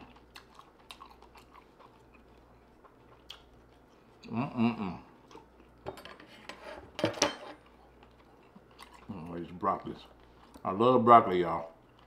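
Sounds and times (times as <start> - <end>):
chewing with mouth clicks: 0.0 - 4.4, 5.2 - 5.8, 7.6 - 9.4, 10.0 - 10.7, 11.8 - 12.0
person humming mmm: 4.2 - 5.2.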